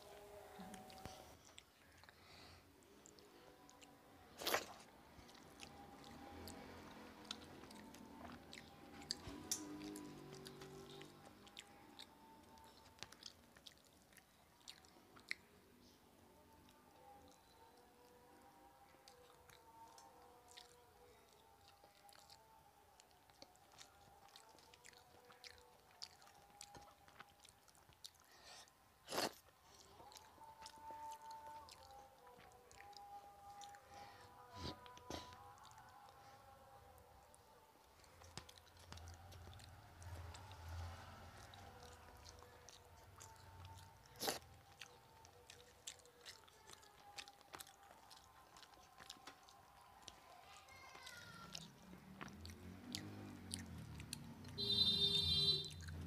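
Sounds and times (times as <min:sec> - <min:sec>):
person chewing: 0:00.2 - 0:36.2, 0:37.0 - 0:56.0.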